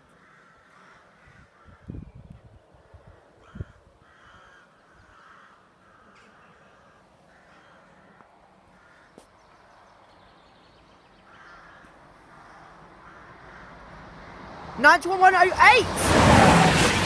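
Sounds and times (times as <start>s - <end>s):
crows cawing: 0.0s - 1.9s, 3.0s - 9.3s, 11.3s - 14.4s.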